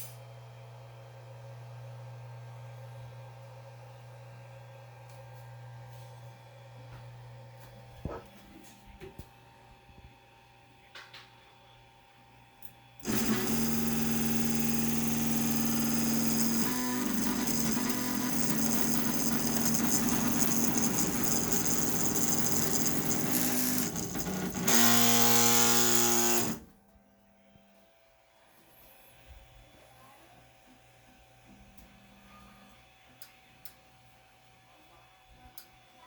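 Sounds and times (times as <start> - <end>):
printer stepper motors whining: 13.0 - 26.7.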